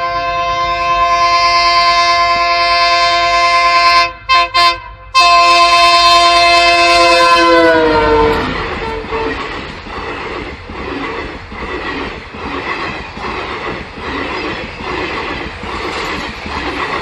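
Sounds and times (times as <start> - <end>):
train horn blasts: 0.0 - 9.6
train rumbling on rails: 0.0 - 17.0.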